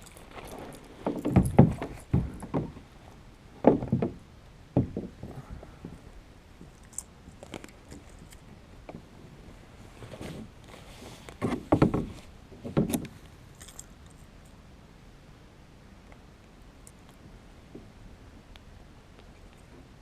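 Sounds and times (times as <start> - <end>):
fishing gear clicking and rattling: 0.0 - 2.7, 6.6 - 8.5, 12.8 - 14.3.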